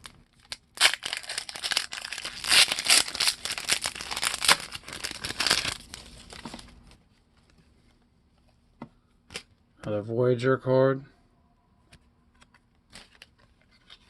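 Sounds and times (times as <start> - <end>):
wrapper crinkling and tearing: 0.0 - 6.8.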